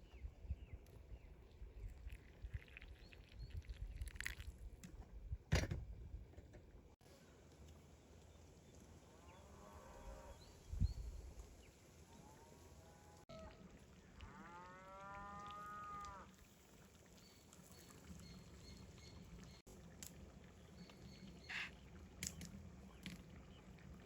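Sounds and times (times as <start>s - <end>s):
distant cattle mooing: 14.2s - 16.3s.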